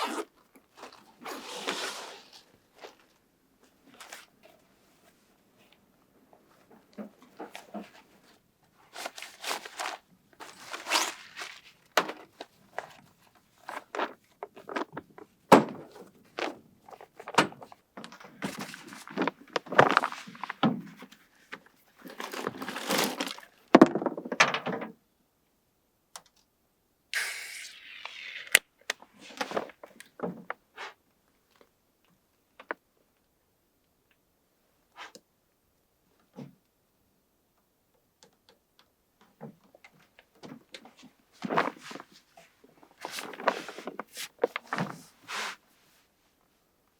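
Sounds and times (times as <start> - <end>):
short rustle: 41.6 - 46.1.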